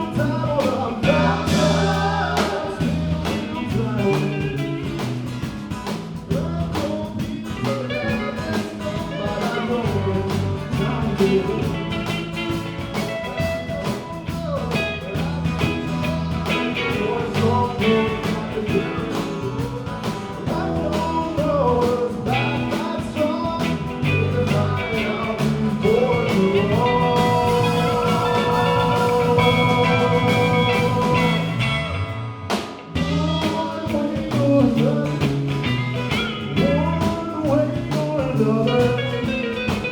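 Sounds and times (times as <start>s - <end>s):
live rock band playing blues-rock: 0.0s - 39.9s
long held guitar notes: 14.9s - 33.7s.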